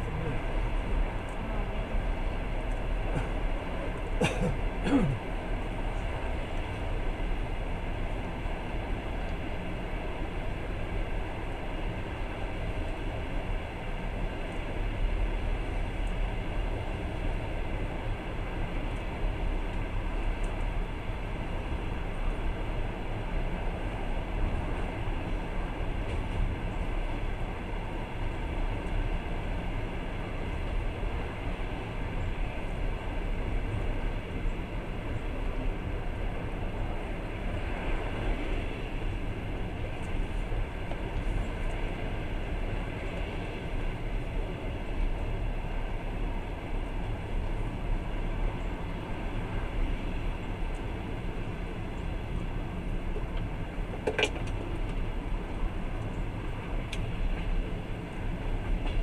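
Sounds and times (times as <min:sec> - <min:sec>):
train wheels rumbling: 0:00.0 - 0:59.0.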